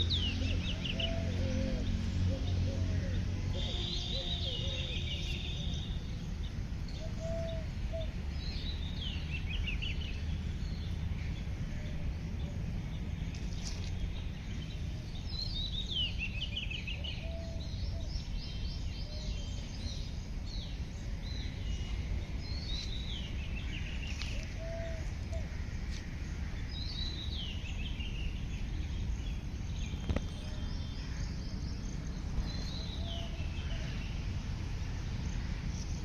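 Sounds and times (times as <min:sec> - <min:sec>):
birds chirping: 0:00.0 - 0:36.0
short low bird calls: 0:23.7 - 0:26.0.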